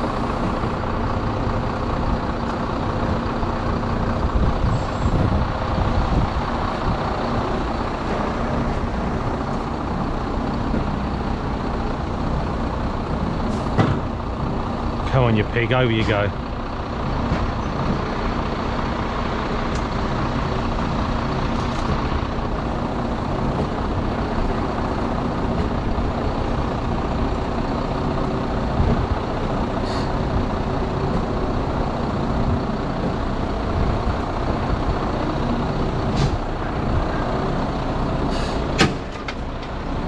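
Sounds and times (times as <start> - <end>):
diesel truck engine under load: 0.0 - 40.0
short air hisses: 38.3 - 38.8.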